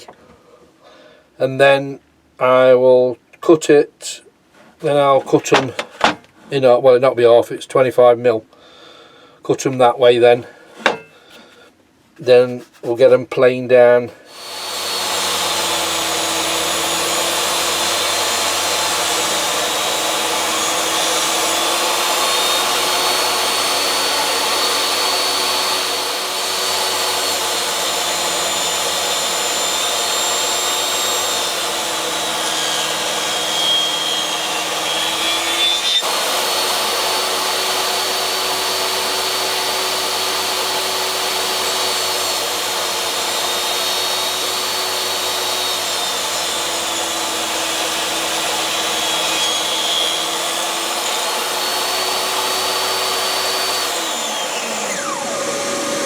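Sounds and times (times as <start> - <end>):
table saw cutting wood: 14.3 - 56.0.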